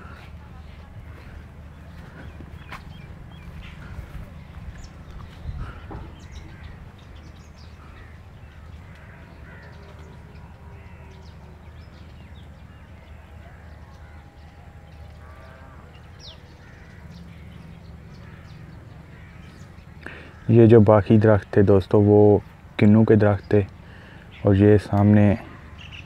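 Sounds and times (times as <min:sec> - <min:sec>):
steady low rumble: 0:00.0 - 0:20.2
birds calling: 0:00.0 - 0:26.0.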